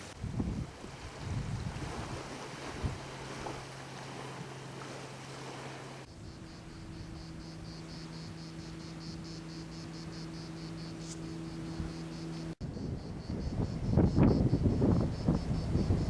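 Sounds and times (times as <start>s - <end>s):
insect chirping: 1.1s - 16.0s.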